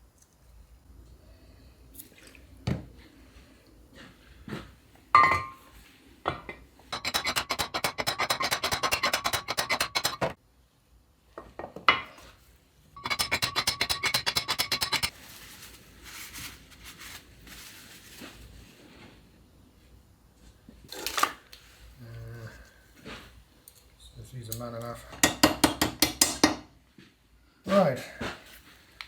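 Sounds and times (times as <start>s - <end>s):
tool knocking on metal parts: 6.3s - 10.4s, 13.0s - 15.1s, 25.2s - 26.7s
rapid metallic clicks: 7.0s - 10.4s, 13.0s - 15.1s.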